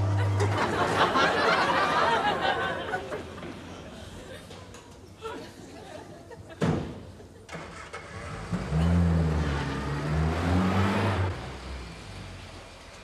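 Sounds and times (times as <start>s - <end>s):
car engine revving: 7.6s - 12.7s.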